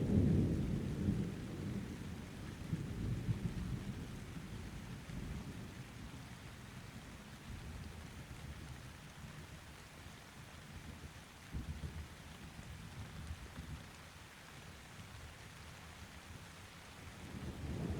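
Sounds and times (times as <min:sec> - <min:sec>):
steady rain: 0:00.0 - 0:17.9
distant thunder rumbling: 0:17.3 - 0:17.9.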